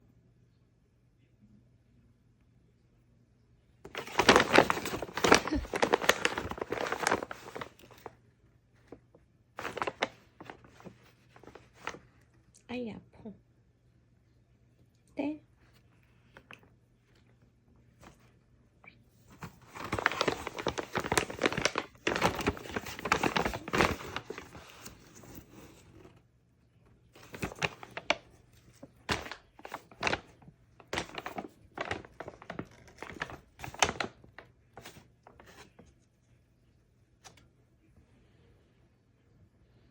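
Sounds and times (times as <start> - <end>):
shopping bag rustling: 3.9 - 8.1, 9.6 - 12.0, 19.3 - 26.2, 27.2 - 35.7.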